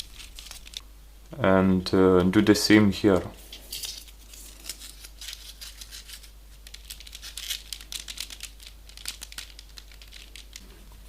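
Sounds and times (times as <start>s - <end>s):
paper rustling and crinkling: 0.0s - 0.8s, 3.4s - 11.0s.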